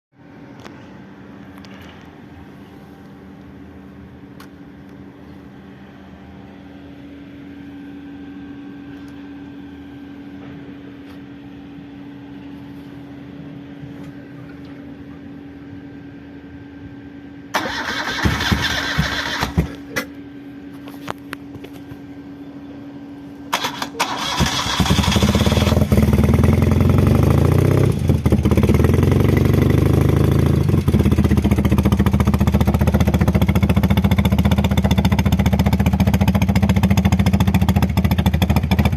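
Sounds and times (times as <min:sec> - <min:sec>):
low hum: 0:00.2 - 0:38.9
engine starter cranking: 0:17.6 - 0:20.1, 0:23.5 - 0:25.9
motorcycle engine running loudly: 0:23.6 - 0:38.9.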